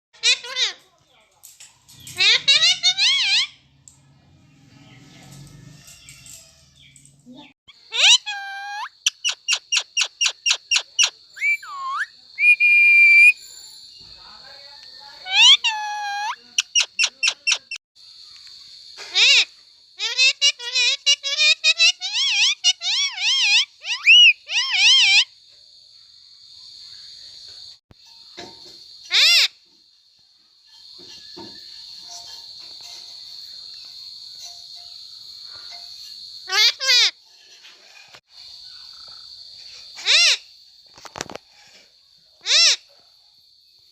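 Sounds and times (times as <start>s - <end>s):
insects droning: 0.2s - 43.9s
parrot whistling and chirping: 7.9s - 13.4s, 15.2s - 17.8s, 21.4s - 25.3s.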